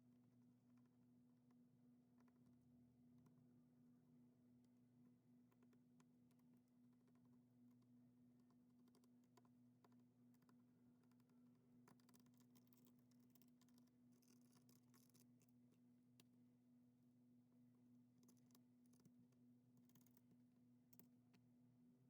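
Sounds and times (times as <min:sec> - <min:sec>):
faint small clicks: 0:05.5 - 0:16.4, 0:18.2 - 0:21.5.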